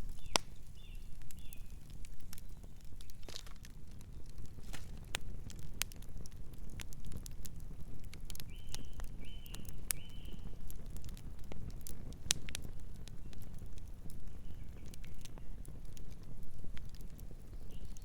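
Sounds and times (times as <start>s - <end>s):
campfire crackling and popping: 0.0s - 18.0s
bird chirping: 0.2s - 1.7s.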